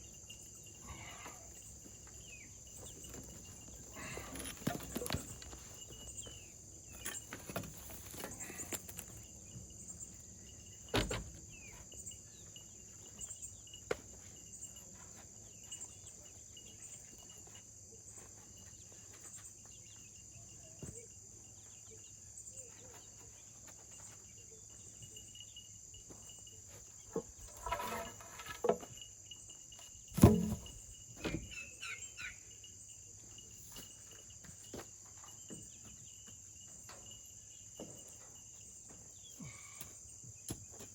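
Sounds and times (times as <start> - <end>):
high insect chirping: 0.0 - 40.9
scrapes: 27.4 - 28.9
thuds: 30.1 - 31.5.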